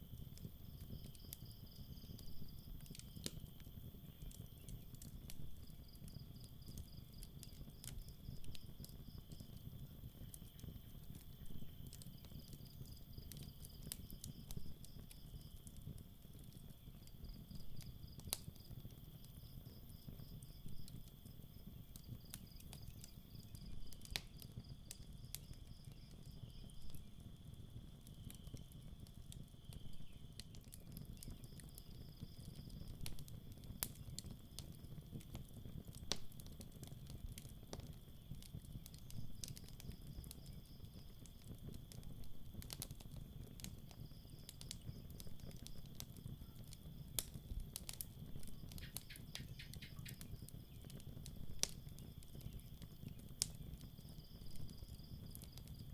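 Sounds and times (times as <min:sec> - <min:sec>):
crickets chirping: 0:00.0 - 0:15.6, 0:43.5 - 0:47.6, 0:48.2 - 0:55.9
campfire crackling and popping: 0:00.0 - 0:55.9.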